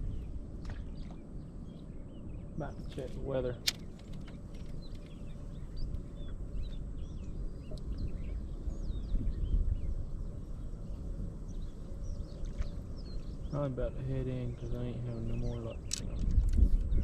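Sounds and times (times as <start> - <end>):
low rumble: 0.0 - 17.0
small birds chirping: 0.0 - 17.0.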